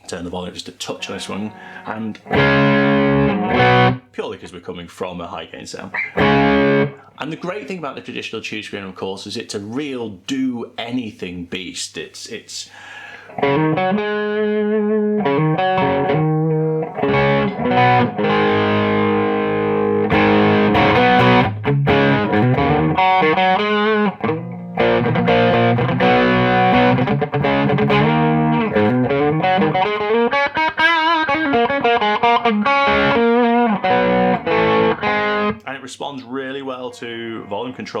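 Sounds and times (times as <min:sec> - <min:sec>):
distorted electric guitar: 0:01.0 - 0:04.0, 0:05.9 - 0:07.0, 0:13.4 - 0:35.6.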